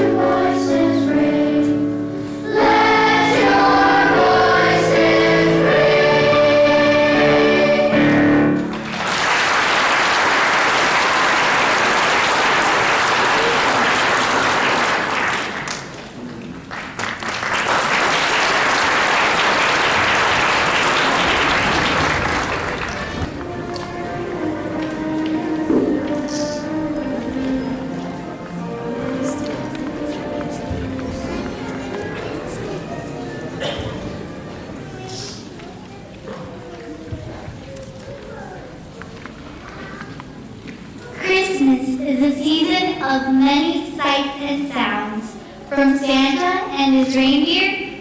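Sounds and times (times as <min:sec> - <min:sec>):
choir singing: 0:00.0 - 0:08.8
audience applause: 0:08.6 - 0:23.9.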